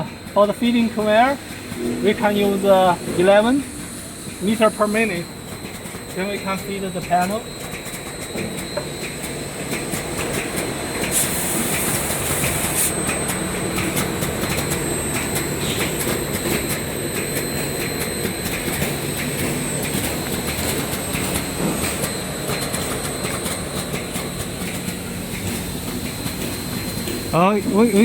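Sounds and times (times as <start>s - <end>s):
belt sander rumble and grinding hiss: 0.4s - 5.4s, 10.9s - 16.0s.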